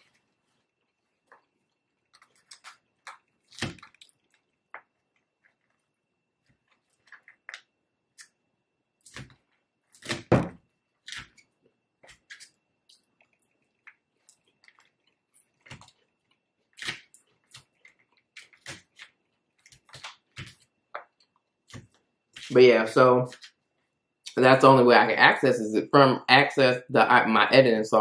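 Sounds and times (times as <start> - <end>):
chewing crisp salad: 0.0 - 8.4, 10.9 - 22.5.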